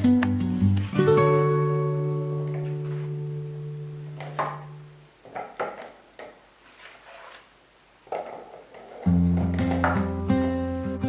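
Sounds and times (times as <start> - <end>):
plucked guitar chord: 0.0 - 5.0.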